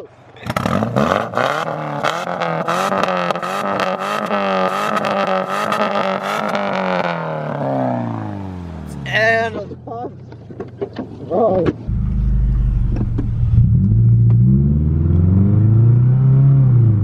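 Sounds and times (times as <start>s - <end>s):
car engine revving: 0.4s - 9.8s, 11.8s - 17.0s
exhaust crackles: 11.8s - 15.4s.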